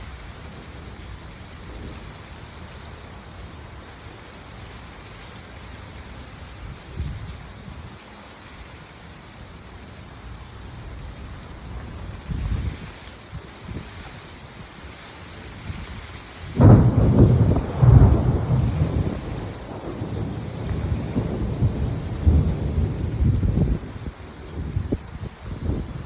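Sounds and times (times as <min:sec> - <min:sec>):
steady rain falling: 0:00.0 - 0:26.0
low thunder rumbles: 0:16.6 - 0:26.0.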